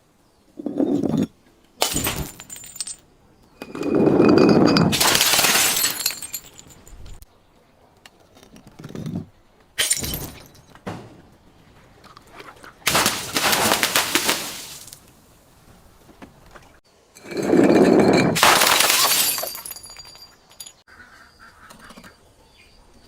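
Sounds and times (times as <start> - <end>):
glass bottles smashing: 1.8 - 3.0, 3.8 - 7.0, 9.8 - 10.8, 12.9 - 15.0, 17.3 - 20.8.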